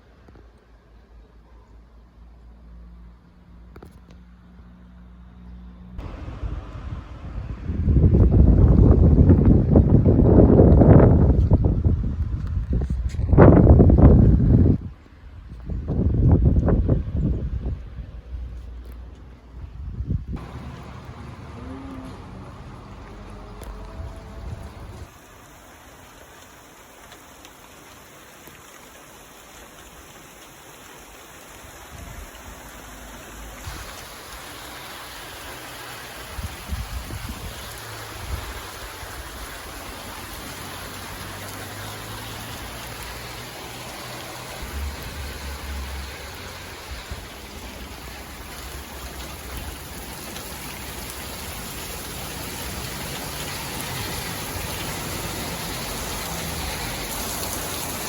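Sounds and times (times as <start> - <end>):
thunder rumbles: 6.0 - 10.8
rain falling: 6.0 - 12.8, 20.4 - 58.0.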